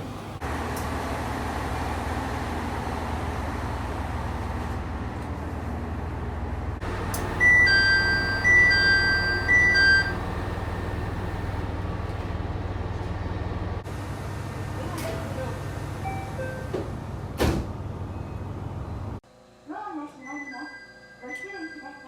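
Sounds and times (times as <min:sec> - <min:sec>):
low hum of stopped train: 0:00.0 - 0:19.2
train door two-note chime: 0:06.9 - 0:11.5.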